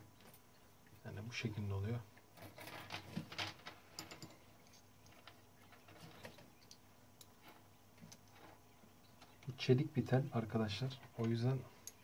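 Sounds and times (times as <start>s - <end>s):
small metal clicks and scrapes: 2.2s - 9.6s.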